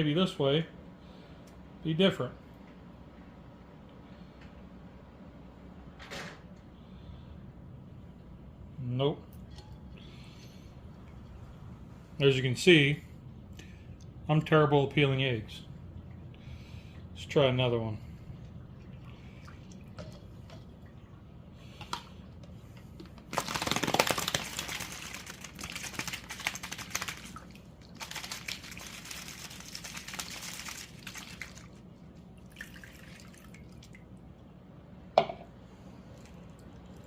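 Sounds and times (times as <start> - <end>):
egg rattling in cup with water: 23.0 - 34.0.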